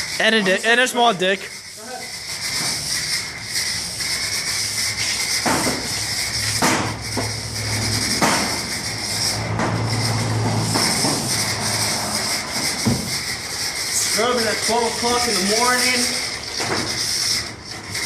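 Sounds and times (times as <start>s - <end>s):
brush scrubbing car body: 0.0s - 18.0s
sharp knocks: 5.4s - 5.9s, 6.5s - 7.3s, 8.1s - 8.7s, 12.8s - 13.1s.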